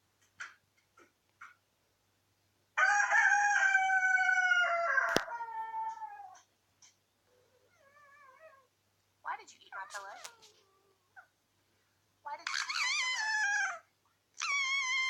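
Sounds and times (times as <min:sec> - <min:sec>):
rooster crowing: 0:02.8 - 0:06.0.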